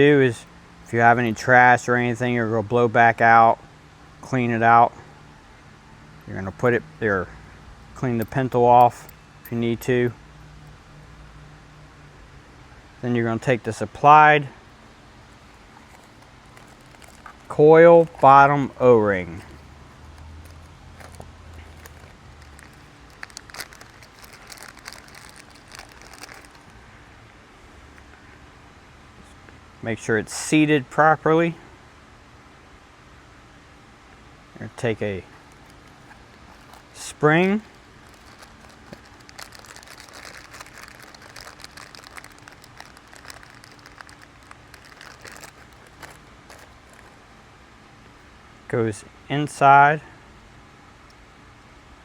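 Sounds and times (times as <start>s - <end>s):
light clicks and crinkling: 15.4s - 18.3s, 19.3s - 26.8s, 35.3s - 47.2s.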